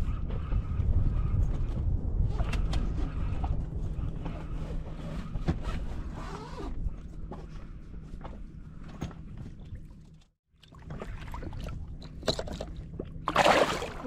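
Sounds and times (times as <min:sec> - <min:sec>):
wind rumbling on microphone: 0:00.0 - 0:08.6.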